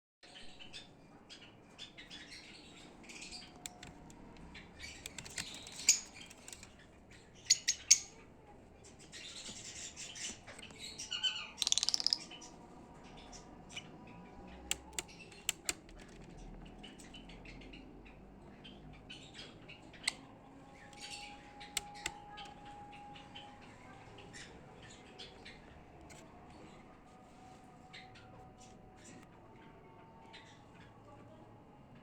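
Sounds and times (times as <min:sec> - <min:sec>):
lovebirds chirping and squawking: 0:00.3 - 0:26.9
sharp clicks: 0:03.6 - 0:06.8, 0:14.6 - 0:16.2, 0:21.0 - 0:22.6.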